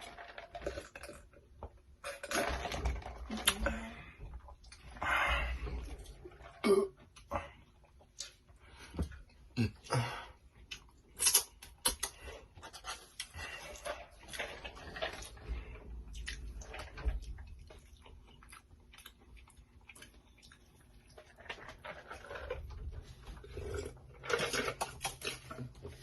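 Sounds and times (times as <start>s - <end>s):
breathing: 5.0s - 6.0s.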